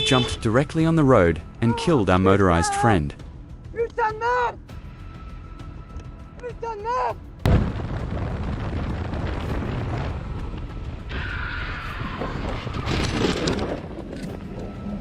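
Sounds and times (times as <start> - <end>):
wind rumble: 7.4 - 15.0.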